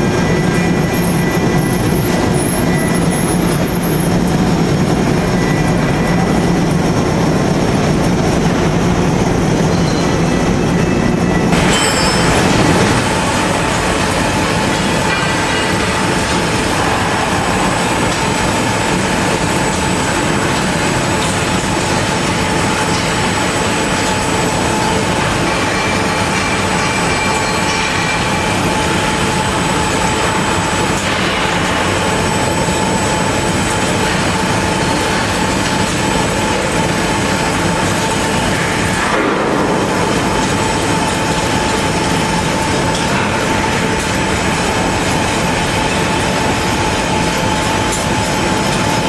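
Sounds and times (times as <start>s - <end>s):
milling machine cutting steel: 11.5s - 24.1s.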